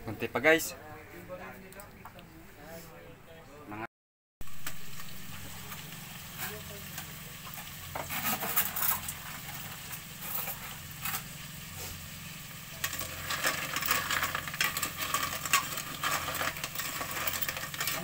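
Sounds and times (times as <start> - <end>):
food sizzling: 4.4 - 18.0
metal utensil scraping a pot: 7.5 - 11.9, 12.8 - 18.0.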